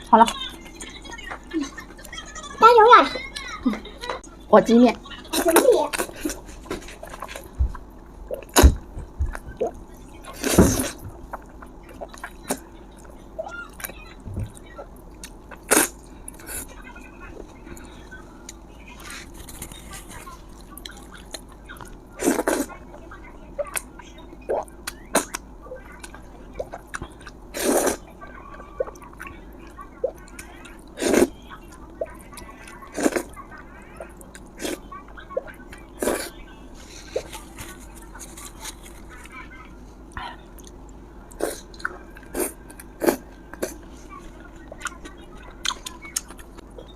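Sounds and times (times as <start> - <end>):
chewing: 5.4 - 16.8, 23.6 - 39.5, 40.1 - 46.9
person slurping: 27.5 - 28.0.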